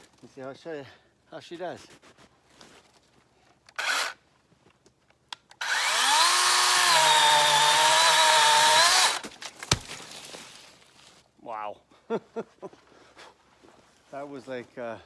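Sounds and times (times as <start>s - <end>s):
electric chainsaw cutting wood: 3.8s - 4.2s, 5.6s - 9.2s.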